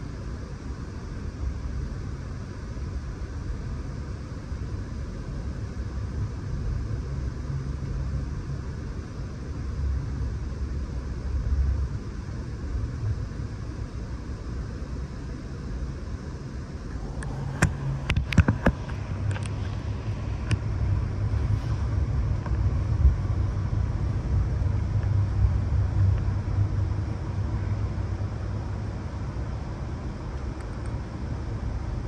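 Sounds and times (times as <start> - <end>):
sharp clicks and knocks: 17.0 - 19.8.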